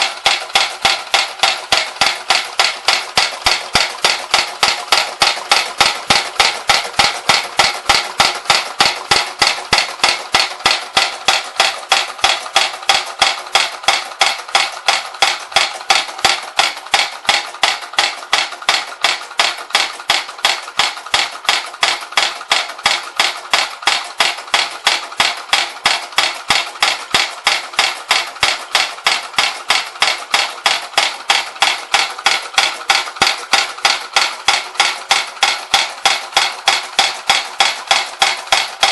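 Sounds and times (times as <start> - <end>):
toy trip-hammer metallic tapping: 0.0 - 38.9.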